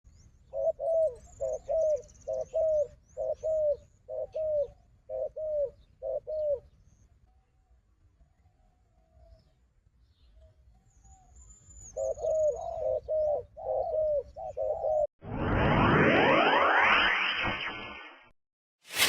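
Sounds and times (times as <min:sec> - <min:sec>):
dove cooing: 0:00.5 - 0:06.7, 0:11.9 - 0:15.0.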